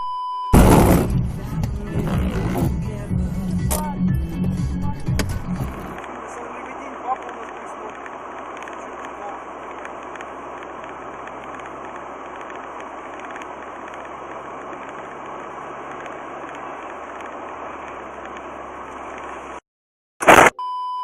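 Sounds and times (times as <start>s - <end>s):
short high-pitched beep: 0.0s - 0.6s, 20.3s - 21.0s
loud burst: 0.5s - 1.3s, 20.2s - 20.6s
car engine drone: 0.5s - 19.6s
road noise: 0.6s - 19.6s.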